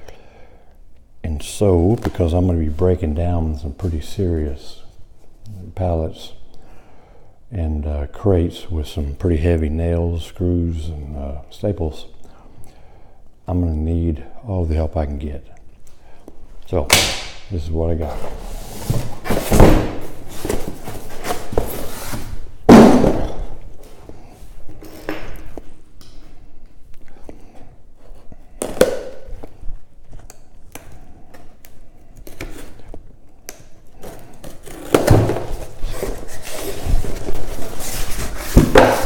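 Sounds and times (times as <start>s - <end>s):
cardboard rustling and scraping: 17.9s - 25.8s, 34.0s - 39.0s
cardboard box thumping: 18.8s - 21.9s, 22.7s - 23.5s, 38.2s - 39.0s.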